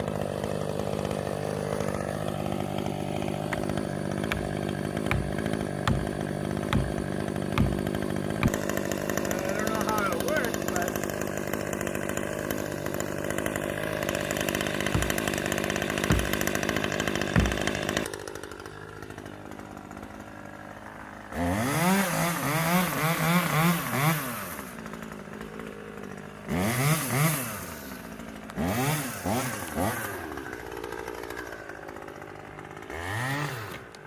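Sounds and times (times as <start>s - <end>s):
chainsaw running and revving: 0.0s - 34.0s
dull thuds: 3.5s - 8.7s, 14.8s - 18.0s.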